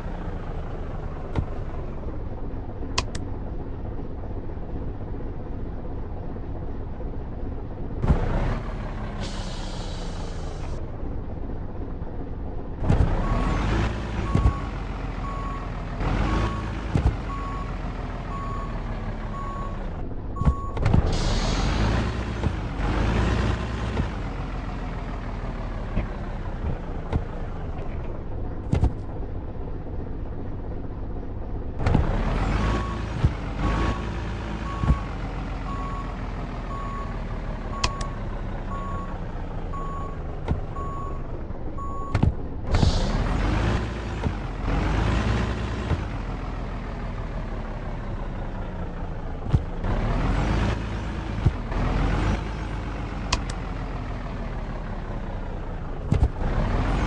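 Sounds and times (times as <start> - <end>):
truck engine revving: 8.0 - 10.8, 12.7 - 29.2, 31.8 - 57.0.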